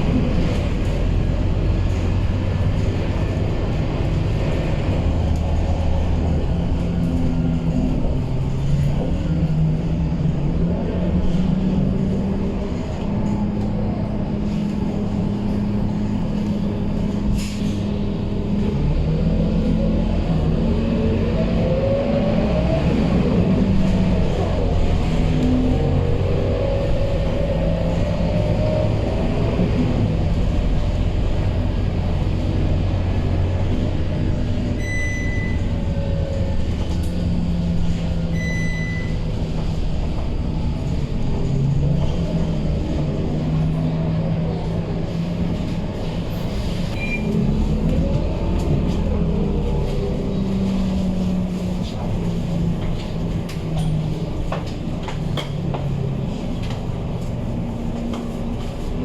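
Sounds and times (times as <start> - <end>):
bus diesel engine running: 0.0 - 59.0
short high beeps: 34.8 - 35.7, 38.4 - 39.2.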